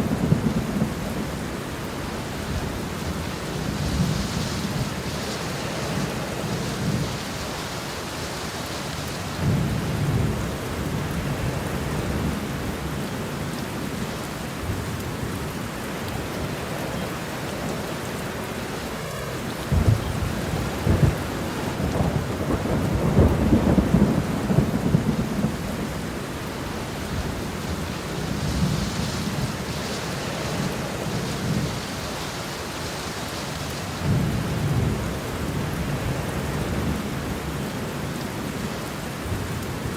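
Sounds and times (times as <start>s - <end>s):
steady rain: 0.0s - 39.9s
rolling thunder: 18.8s - 32.6s
sharp thunder cracks: 19.6s - 25.7s.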